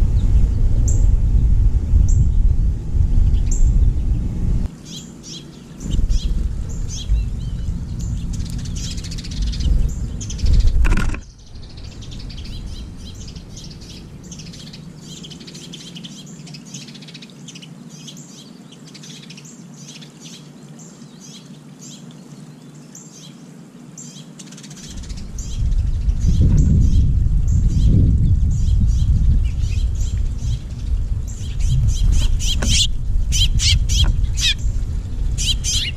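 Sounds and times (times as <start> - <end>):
low rumble: 0.0 - 4.7, 5.8 - 15.2, 24.8 - 35.9
finches chirping: 4.8 - 35.9.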